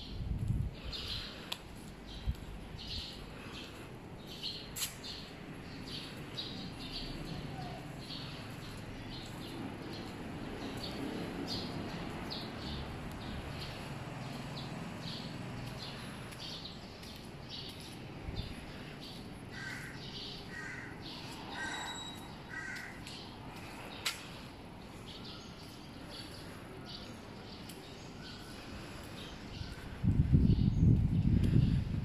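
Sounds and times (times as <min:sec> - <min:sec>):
small birds chirping: 0:00.0 - 0:32.0
crow cawing: 0:19.5 - 0:23.0.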